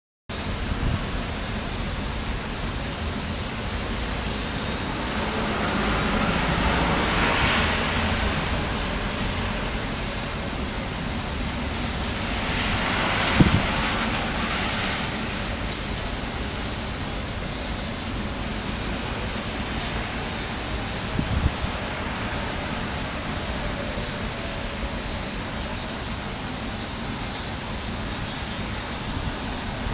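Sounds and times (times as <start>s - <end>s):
wind gusting through trees: 0.3s - 29.9s
wind buffeting microphone: 3.7s - 17.1s, 18.1s - 25.3s.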